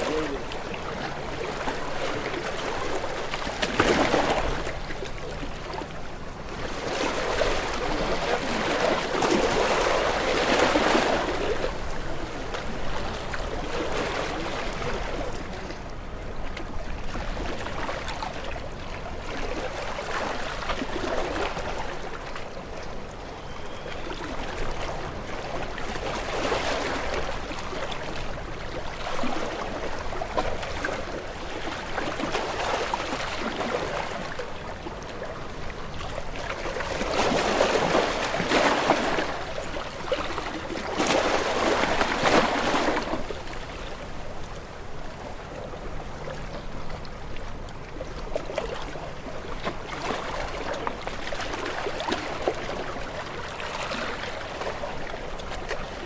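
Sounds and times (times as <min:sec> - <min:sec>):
waves washing: 0:00.0 - 0:56.0.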